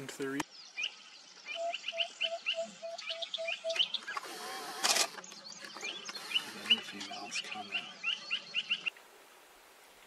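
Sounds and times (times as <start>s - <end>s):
high bird chirps: 0.4s - 4.4s, 5.0s - 8.9s
bird piping note: 0.7s - 4.2s, 5.9s - 8.9s.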